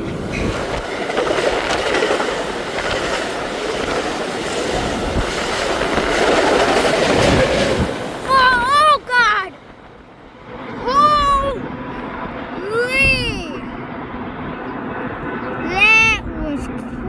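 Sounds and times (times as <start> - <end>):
clickety-clack of rail joints: 0.0 - 8.3
train wheels rushing on rail: 0.0 - 12.8.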